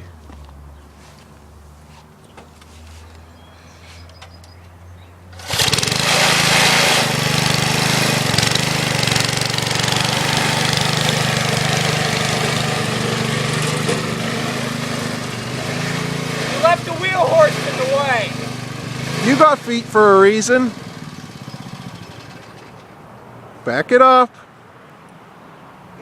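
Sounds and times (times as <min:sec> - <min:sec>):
small engine running: 0:05.3 - 0:22.9.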